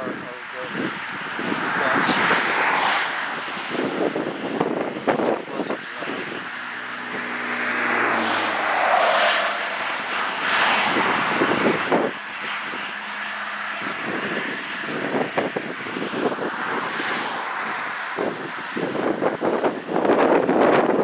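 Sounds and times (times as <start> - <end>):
motor engine passing by: 6.1 - 15.3.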